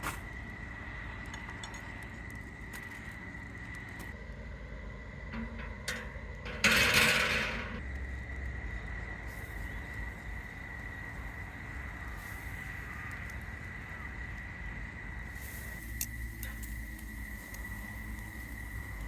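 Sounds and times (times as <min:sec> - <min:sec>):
high-pitched insect trill: 0:07.8 - 0:19.0
loud burst of hissing noise: 0:09.2 - 0:19.0.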